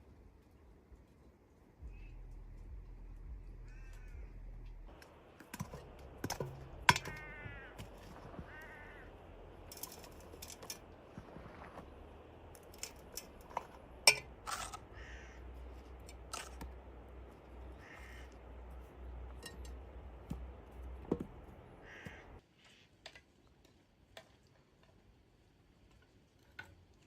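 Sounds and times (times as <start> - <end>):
low background hum: 0.0 - 22.4
bird harsh calls: 3.7 - 4.3, 6.6 - 10.4, 14.6 - 20.0, 21.6 - 22.8.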